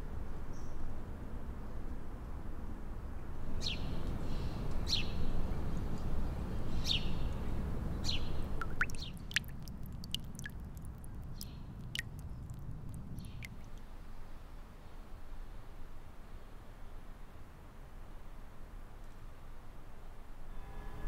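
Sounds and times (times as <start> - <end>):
low outdoor rumble: 5.2 - 14.7
small birds chirping: 6.7 - 13.8.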